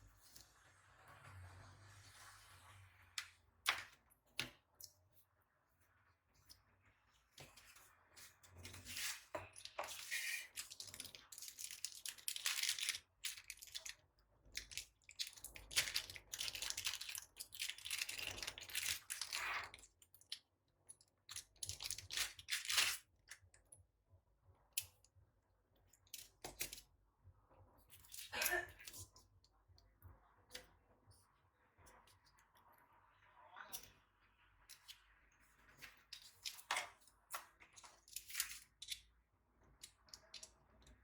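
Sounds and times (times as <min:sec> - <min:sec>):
packaging rustling and tearing: 0:08.8 - 0:14.0, 0:14.6 - 0:19.8, 0:21.6 - 0:23.1.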